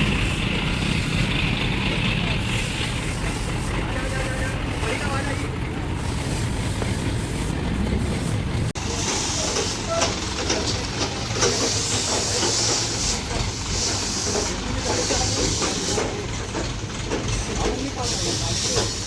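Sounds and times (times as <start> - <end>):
heavy machinery engine rumble: 0.0 - 19.0.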